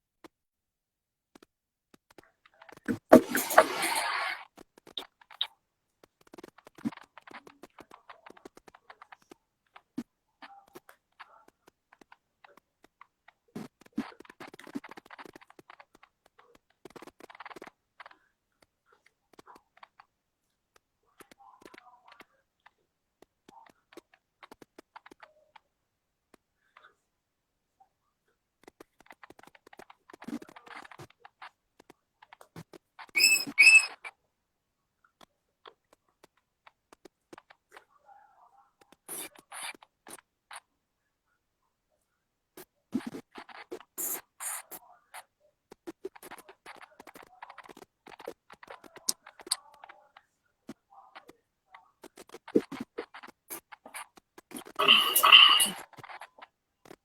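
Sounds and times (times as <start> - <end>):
faint clicks and taps: 1.3 - 3.7, 4.5 - 33.2, 35.0 - 40.8, 42.0 - 54.8, 55.7 - 57.0
high-pitched squeaks: 33.1 - 34.1, 54.8 - 55.8
soft short murmurs: 52.1 - 56.3.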